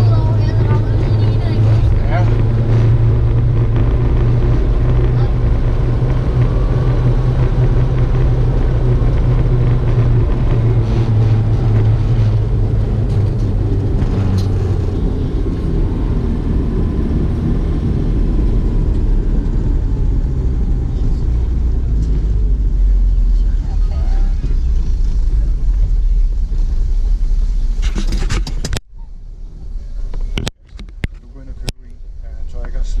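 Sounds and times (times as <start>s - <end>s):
car engine and tyres rumbling: 0.0s - 33.0s.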